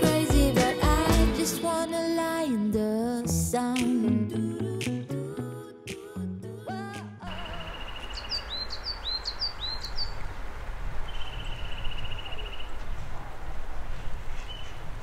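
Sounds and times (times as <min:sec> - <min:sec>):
small birds chirping: 0:07.3 - 0:10.3.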